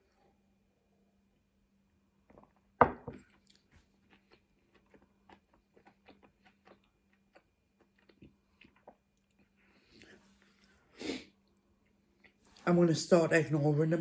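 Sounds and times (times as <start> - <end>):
wet chewing with clicks: 3.3 - 9.6.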